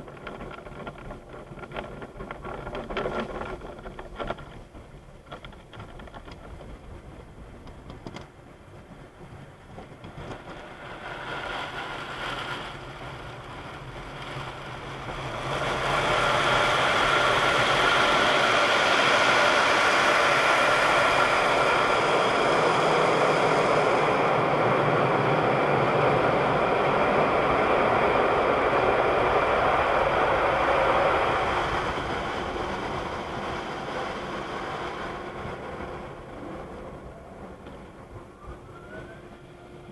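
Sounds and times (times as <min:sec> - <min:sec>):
car wash spraying machinery: 0:09.4 - 0:39.9.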